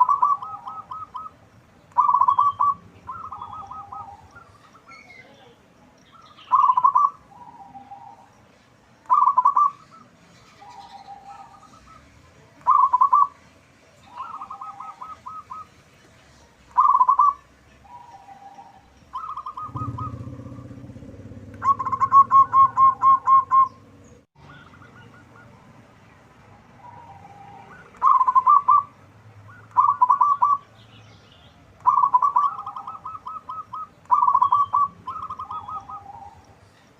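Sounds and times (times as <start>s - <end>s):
dove cooing: 0.0s - 5.0s, 6.4s - 8.3s, 9.1s - 13.4s, 14.1s - 15.8s, 16.7s - 25.7s, 26.7s - 30.7s, 31.8s - 36.7s
low hum: 19.6s - 24.3s.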